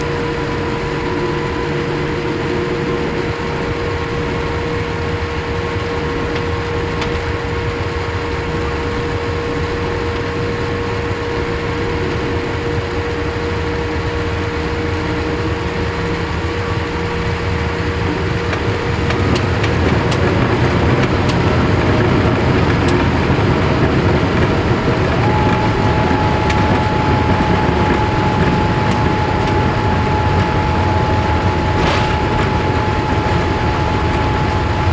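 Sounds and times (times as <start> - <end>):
jet engine cabin noise: 0.0 - 34.9
high steady tone: 24.5 - 34.9.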